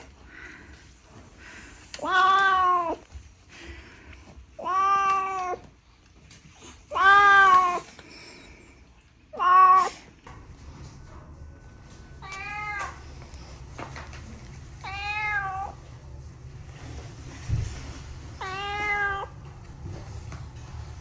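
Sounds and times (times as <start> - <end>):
cat meowing: 9.3 - 10.1, 12.2 - 13.2, 14.8 - 15.8, 18.4 - 19.4.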